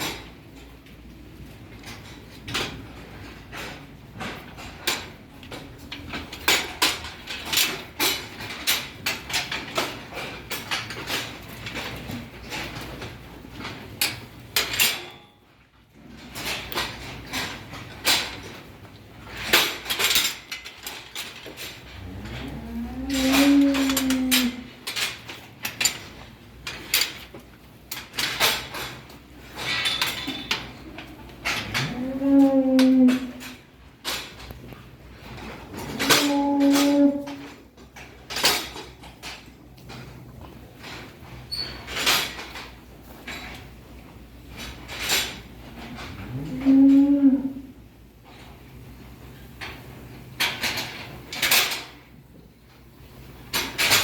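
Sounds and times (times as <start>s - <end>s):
cow mooing: 22.0s - 24.7s, 31.6s - 33.5s, 36.0s - 37.5s, 46.2s - 47.7s.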